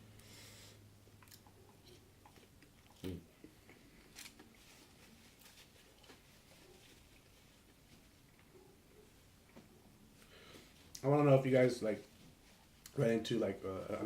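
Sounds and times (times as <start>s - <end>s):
faint chewing and mouth sounds: 1.1s - 11.1s, 12.2s - 13.0s.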